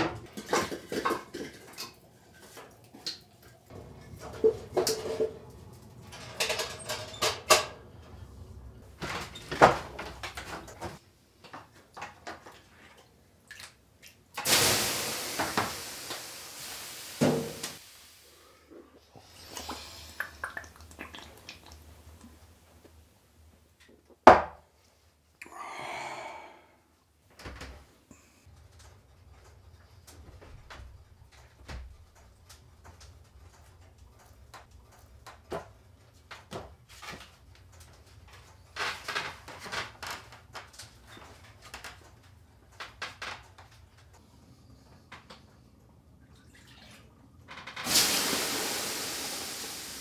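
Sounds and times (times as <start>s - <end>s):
steam hissing from hot stones: 14.4s - 18.6s, 47.8s - 50.0s.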